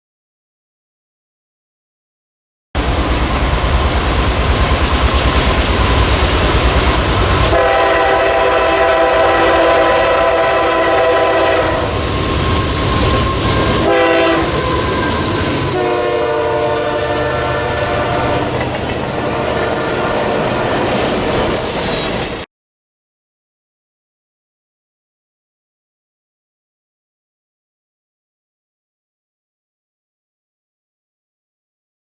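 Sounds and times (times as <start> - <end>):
passing train rumble and clatter: 2.8 - 22.5
locomotive horn blasts: 7.3 - 20.7.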